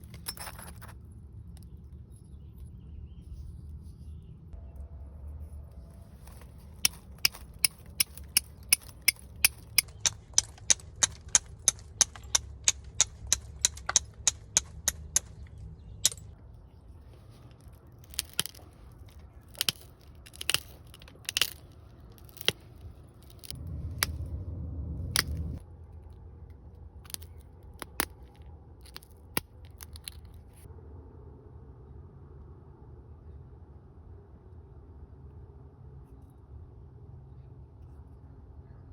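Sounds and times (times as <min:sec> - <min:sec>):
sharp clicks of stone knapping: 0:06.2 - 0:16.4, 0:18.0 - 0:24.2, 0:27.0 - 0:30.3.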